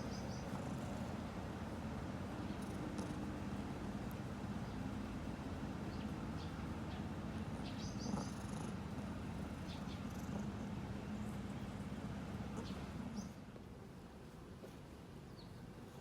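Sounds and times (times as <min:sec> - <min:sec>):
cat purring: 0:00.0 - 0:04.6, 0:07.2 - 0:13.4.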